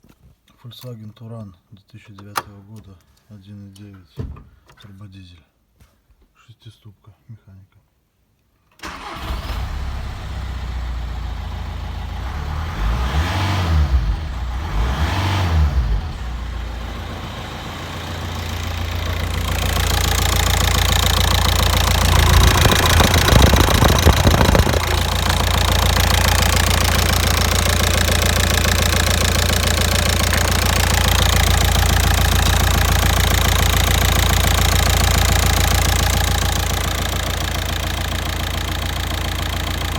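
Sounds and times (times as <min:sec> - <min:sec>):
diesel engine starting and idling: 0:08.8 - 0:39.9
engine revving: 0:08.8 - 0:39.9.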